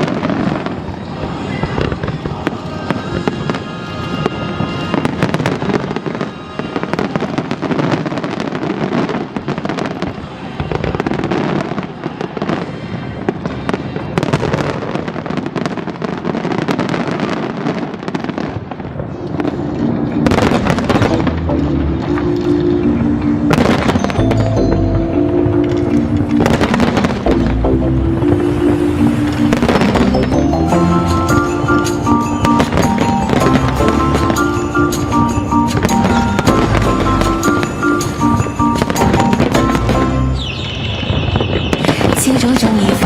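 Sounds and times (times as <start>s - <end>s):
fireworks crackling and bursting: 0.0s - 43.0s
background music: 19.3s - 40.7s.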